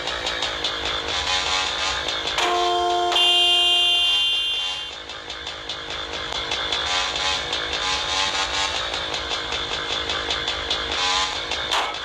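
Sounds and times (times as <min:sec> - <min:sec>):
motorcycle engine running: 0:04.9 - 0:11.8.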